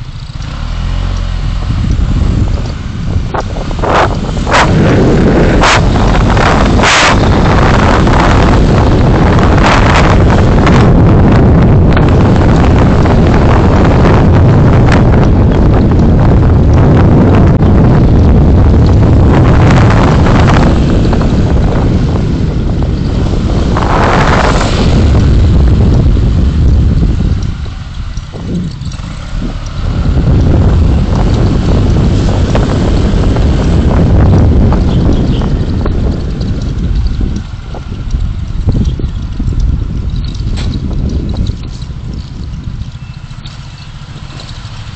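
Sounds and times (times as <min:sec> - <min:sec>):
car driving rumble: 0:00.0 - 0:44.9
road and wind noise: 0:00.0 - 0:44.9.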